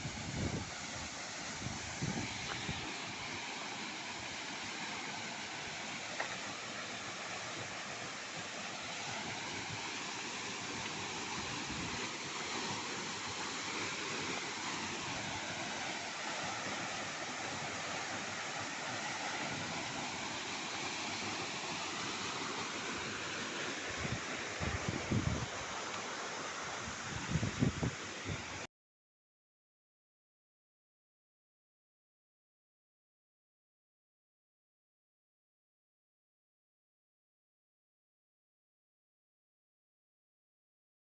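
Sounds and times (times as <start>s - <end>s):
waterfall roaring: 0.0s - 28.6s.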